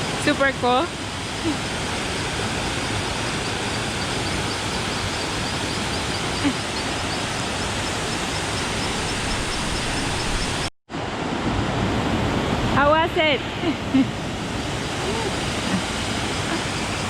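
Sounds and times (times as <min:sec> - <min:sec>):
river water rushing: 0:14.2 - 0:17.0.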